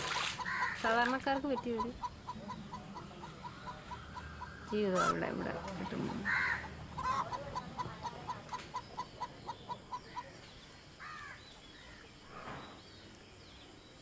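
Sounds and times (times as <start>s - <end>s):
chickens clucking: 0.0s - 10.7s.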